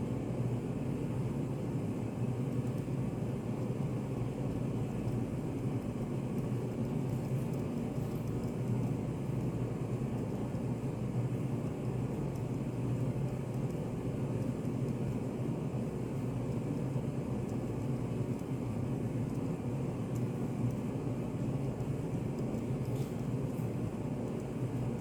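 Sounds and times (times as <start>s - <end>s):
faint light ticks: 20.1s - 20.8s.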